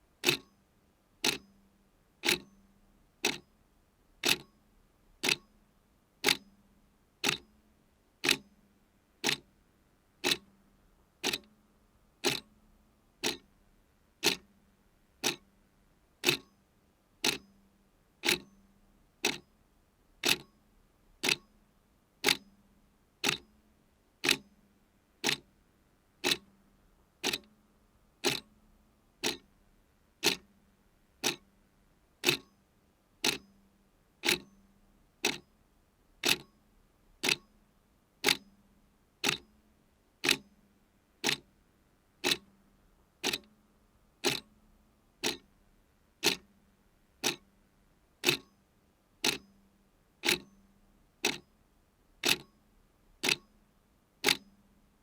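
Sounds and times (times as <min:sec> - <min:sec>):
clock ticking: 0:00.2 - 0:00.5, 0:01.2 - 0:01.4, 0:04.2 - 0:04.5, 0:05.2 - 0:05.4, 0:07.2 - 0:07.4, 0:08.2 - 0:08.4, 0:09.2 - 0:09.4, 0:10.2 - 0:10.4, 0:11.2 - 0:11.5, 0:12.2 - 0:12.5, 0:13.2 - 0:13.4, 0:14.2 - 0:14.4, 0:15.2 - 0:15.4, 0:16.2 - 0:16.5, 0:17.2 - 0:17.4, 0:18.2 - 0:18.5, 0:20.2 - 0:20.5, 0:21.2 - 0:21.4, 0:24.2 - 0:24.4, 0:25.2 - 0:25.4, 0:26.2 - 0:26.4, 0:27.2 - 0:27.5, 0:28.2 - 0:28.5, 0:29.2 - 0:29.5, 0:30.2 - 0:30.5, 0:31.2 - 0:31.4, 0:32.2 - 0:32.5, 0:33.2 - 0:33.4, 0:34.2 - 0:34.5, 0:35.2 - 0:35.4, 0:36.2 - 0:36.5, 0:37.2 - 0:37.5, 0:38.2 - 0:38.4, 0:39.2 - 0:39.4, 0:40.2 - 0:40.4, 0:41.2 - 0:41.4, 0:42.2 - 0:42.5, 0:43.2 - 0:43.5, 0:44.2 - 0:44.5, 0:45.2 - 0:45.5, 0:46.2 - 0:46.5, 0:47.2 - 0:47.4, 0:48.2 - 0:48.5, 0:49.2 - 0:49.4, 0:50.2 - 0:50.5, 0:51.2 - 0:51.4, 0:52.2 - 0:52.5, 0:53.2 - 0:53.4, 0:54.2 - 0:54.4.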